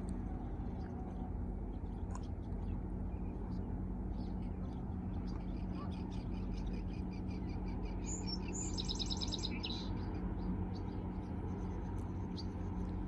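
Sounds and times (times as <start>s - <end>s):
songbirds chirping: 0.0s - 13.0s
steady low rumble: 0.0s - 13.0s
bird trill: 5.3s - 11.2s.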